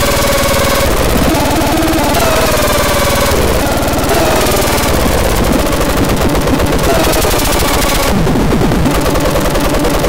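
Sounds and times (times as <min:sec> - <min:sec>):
falling sliding tone: 0:00.0 - 0:05.8
short low blips: 0:00.0 - 0:09.4
rapid low electronic buzzing: 0:00.0 - 0:10.0.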